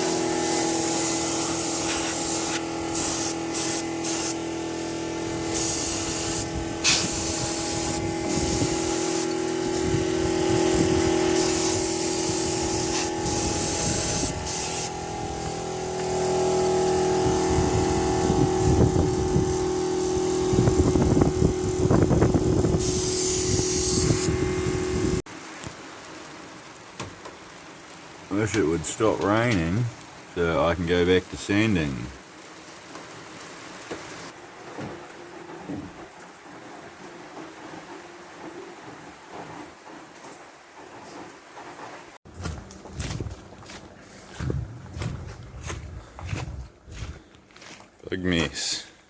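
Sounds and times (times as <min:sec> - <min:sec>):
motor hum: 0:00.0 - 0:25.2, 0:42.3 - 0:47.4
spray gun hissing: 0:00.0 - 0:25.2.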